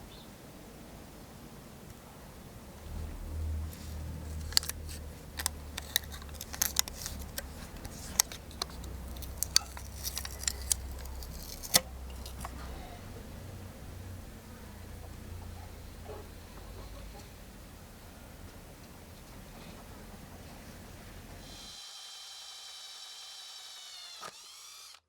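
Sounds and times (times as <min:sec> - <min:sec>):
hand tools clicking on metal: 0:04.4 - 0:12.6.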